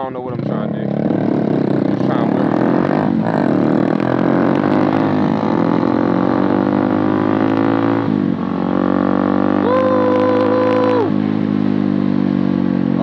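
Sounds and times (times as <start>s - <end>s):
dirt bike engine revving: 0.4s - 13.0s.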